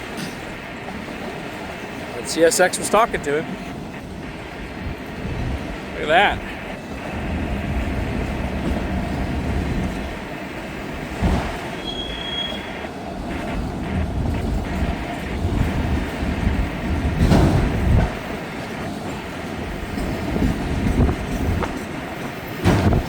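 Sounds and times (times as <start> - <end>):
train wheels rumbling on rail: 0.0 - 23.0
clacking and heavy knocks: 14.0 - 19.2, 19.9 - 23.0.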